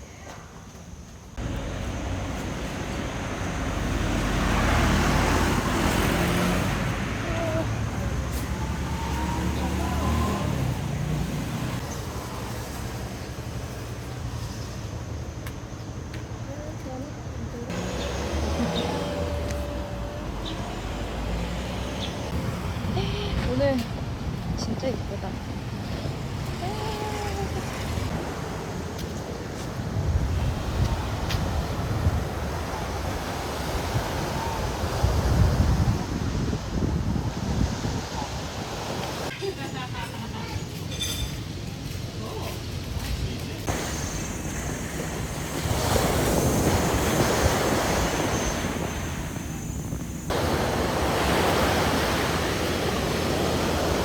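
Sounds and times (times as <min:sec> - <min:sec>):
road traffic rumble: 0:01.0 - 0:54.0
waves rushing: 0:01.4 - 0:15.1, 0:17.7 - 0:40.4, 0:42.8 - 0:54.0
wind buffeting microphone: 0:17.7 - 0:39.3, 0:42.8 - 0:54.0.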